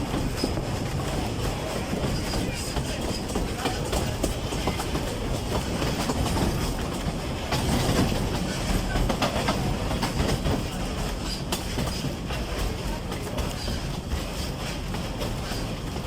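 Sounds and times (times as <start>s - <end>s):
diesel train rumbling: 0.0s - 16.0s
wheels clicking over rails: 0.0s - 16.0s.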